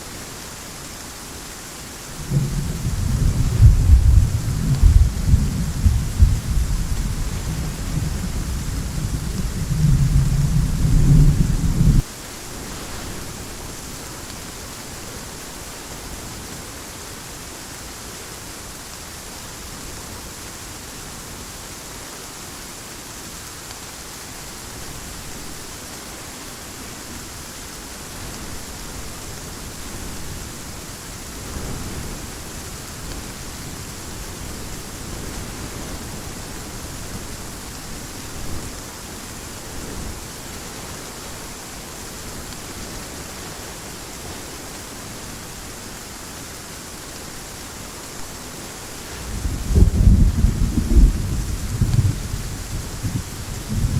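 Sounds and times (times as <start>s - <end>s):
heavy rain hissing: 0.0s - 53.9s
thunder rumble: 2.1s - 12.0s, 49.0s - 53.9s.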